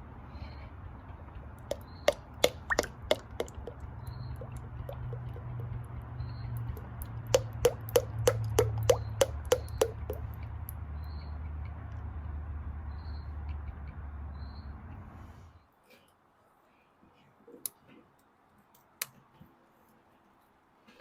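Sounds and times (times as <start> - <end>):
sharp taps: 1.6 - 5.9, 6.6 - 10.4.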